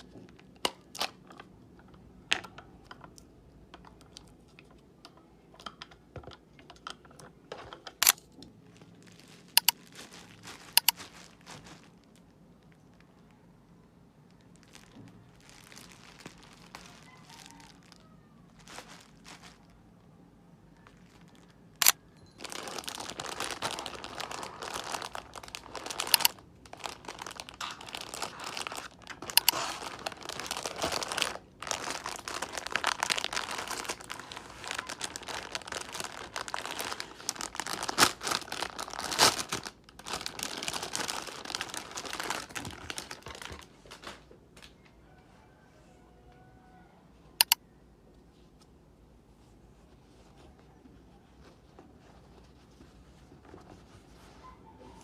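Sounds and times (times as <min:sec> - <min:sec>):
faint handling sounds: 0:00.0 - 0:45.7, 0:46.3 - 0:55.0
plastic packaging crinkling: 0:07.5 - 0:13.5, 0:14.1 - 0:20.1, 0:20.8 - 0:44.7
sharp clicks: 0:47.4 - 0:47.6.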